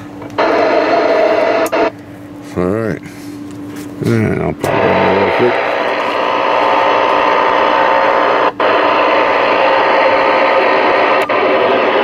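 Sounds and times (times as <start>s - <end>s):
radio static hiss: 0.4s - 1.9s, 4.0s - 12.0s.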